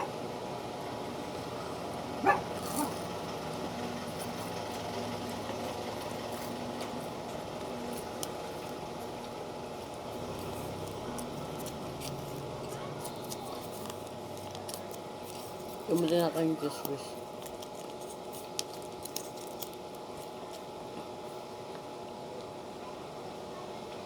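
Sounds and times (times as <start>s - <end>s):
low background hum: 0.0s - 24.0s
dog yelping: 2.2s - 3.1s.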